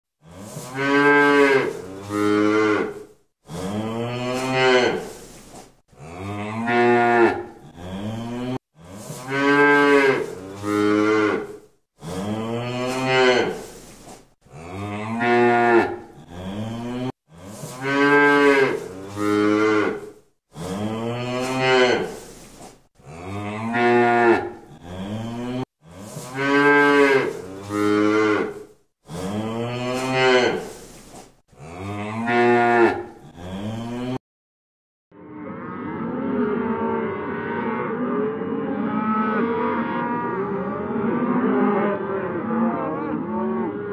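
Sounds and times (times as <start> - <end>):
cow mooing: 0.2 - 5.2, 6.0 - 13.7, 14.5 - 22.2, 23.0 - 25.6, 26.4 - 30.8, 31.6 - 34.2, 35.2 - 43.9.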